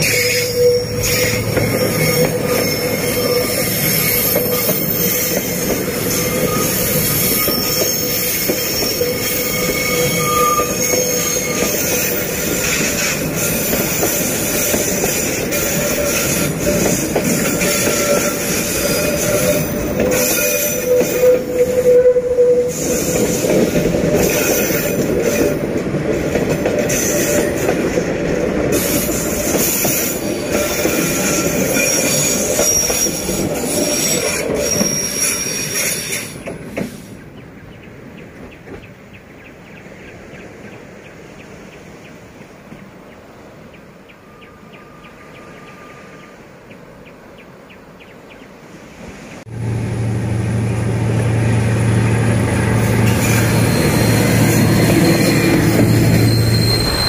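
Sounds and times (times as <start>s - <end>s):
wheels squealing: 0.0s - 25.8s, 28.7s - 36.5s, 51.4s - 57.0s
train coaches rolling past: 0.0s - 57.0s.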